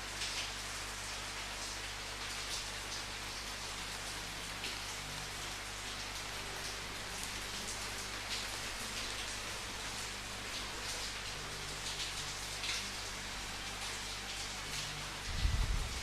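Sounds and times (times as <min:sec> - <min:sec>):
rain hissing: 0:00.0 - 0:16.0
raindrops pattering: 0:00.0 - 0:16.0.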